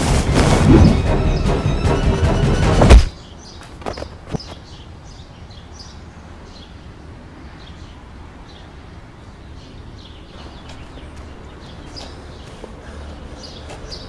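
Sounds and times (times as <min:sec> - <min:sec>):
birds chirping: 0:00.0 - 0:02.4, 0:03.0 - 0:14.0
dull thuds: 0:02.8 - 0:03.1.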